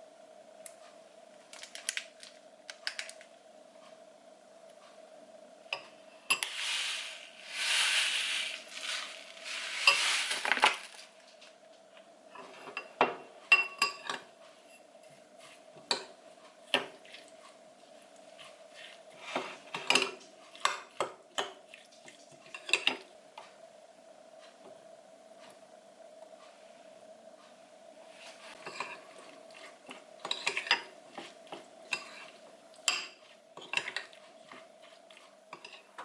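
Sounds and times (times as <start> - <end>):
steady hum: 0.0 - 22.2, 22.9 - 36.0
utensils clinking against dishes: 5.8 - 6.6, 8.7 - 10.9, 12.4 - 14.8, 28.6 - 29.0, 30.2 - 30.9
hissy sizzle-like noise: 6.1 - 11.8.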